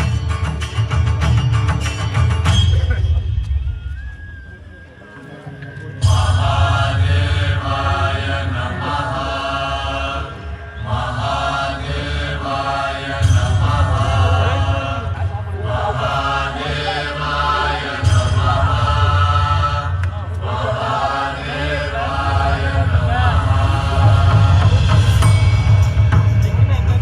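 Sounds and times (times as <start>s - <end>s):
voices chanting: 4.8s - 26.8s
deep low drone: 5.6s - 27.0s.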